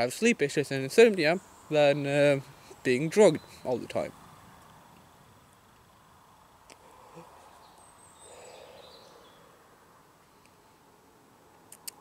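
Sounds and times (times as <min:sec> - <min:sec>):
faint woodland ambience: 0:00.0 - 0:12.0
bird chirping: 0:01.1 - 0:05.2, 0:06.8 - 0:09.6.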